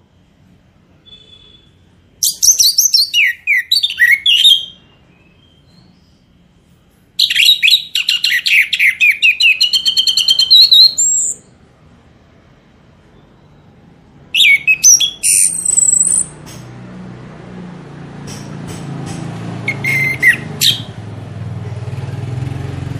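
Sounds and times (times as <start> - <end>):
songbird whistling and trilling: 2.2 - 6.2, 7.2 - 11.5, 14.3 - 16.4, 19.6 - 21.0.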